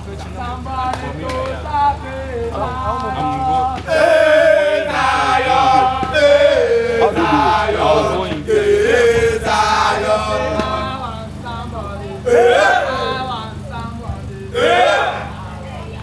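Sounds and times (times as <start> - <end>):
low steady hum: 0.0 - 16.0
voices chanting: 0.0 - 16.0.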